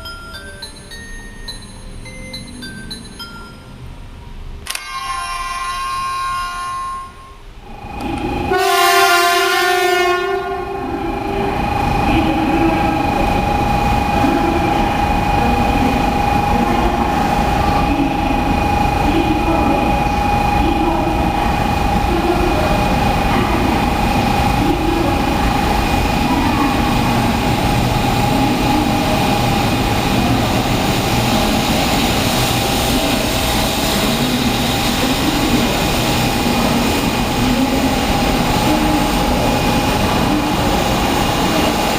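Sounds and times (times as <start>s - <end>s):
train running whine and rail noise: 0.0s - 41.9s
toy train horn blast: 4.7s - 7.4s, 8.5s - 10.8s.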